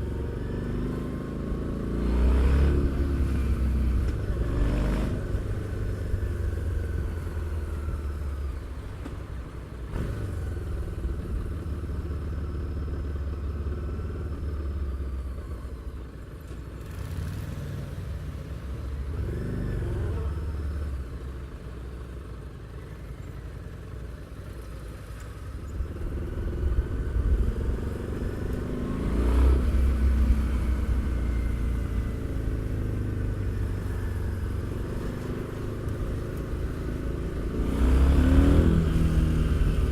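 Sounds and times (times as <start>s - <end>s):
motorcycle engine accelerating: 25.7s - 39.9s.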